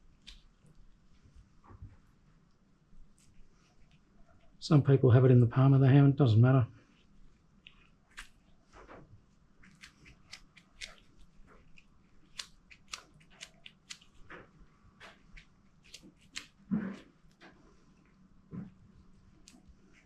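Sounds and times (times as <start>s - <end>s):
sticky clicks and squelches of grease: 7.5s - 8.8s, 9.6s - 16.7s.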